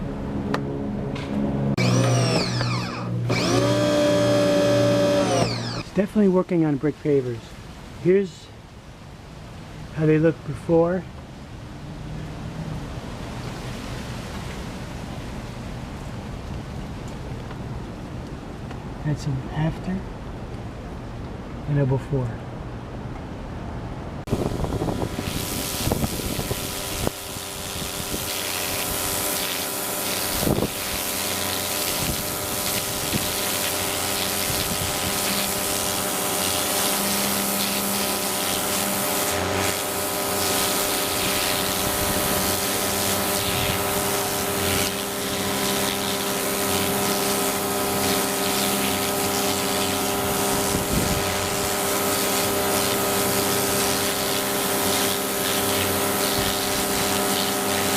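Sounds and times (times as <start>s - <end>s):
pressure washer motor hum: 0.0s - 6.3s, 24.3s - 57.9s
high-pressure water jet hissing: 1.8s - 6.1s, 24.3s - 57.9s.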